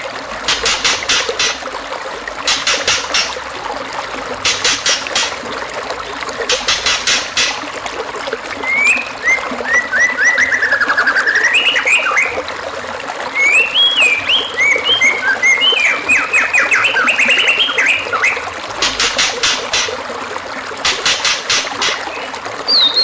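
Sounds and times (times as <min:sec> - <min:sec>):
trickle of running water: 0:00.0 - 0:23.0
songbird singing: 0:08.6 - 0:12.4, 0:13.3 - 0:19.1, 0:21.8 - 0:23.0.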